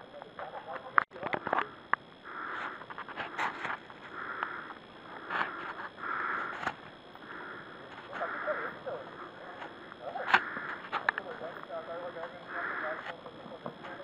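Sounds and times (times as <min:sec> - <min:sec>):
person breathing hard: 0:02.2 - 0:11.0, 0:12.5 - 0:13.1.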